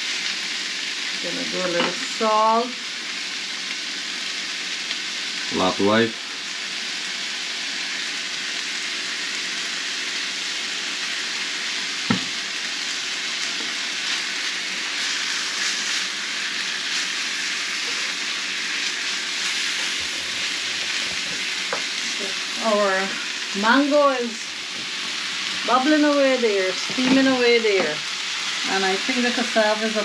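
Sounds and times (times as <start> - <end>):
meat sizzling in a pan: 0.0 - 30.0
sharp knock: 12.1 - 12.4.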